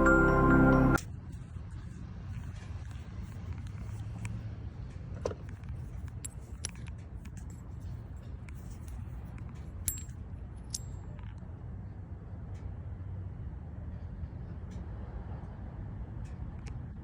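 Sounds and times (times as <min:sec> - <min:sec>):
light metallic clinks: 0:06.0 - 0:11.2.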